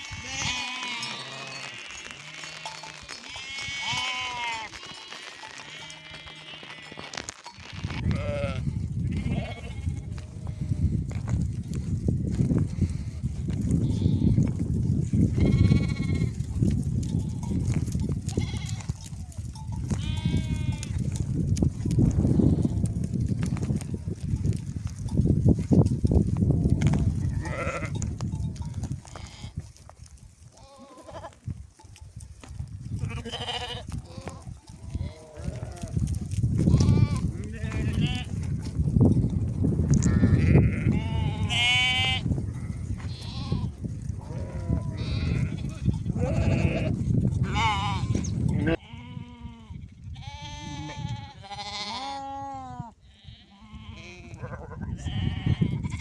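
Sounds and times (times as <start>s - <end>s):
sheep bleating: 0.0s - 10.8s, 13.8s - 14.5s, 15.3s - 16.3s, 18.3s - 19.0s, 19.9s - 21.0s, 27.2s - 28.0s, 29.1s - 29.6s, 30.6s - 31.4s, 33.0s - 38.4s, 39.9s - 56.0s.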